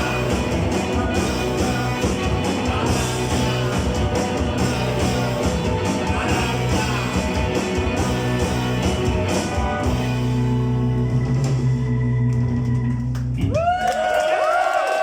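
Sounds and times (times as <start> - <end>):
electric guitar: 0.0 - 13.6
rock band playing live: 0.0 - 13.6.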